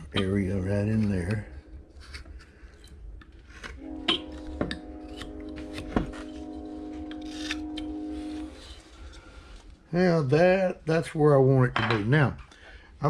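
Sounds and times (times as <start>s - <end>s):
train horn chord: 0.0s - 2.9s, 3.5s - 11.0s.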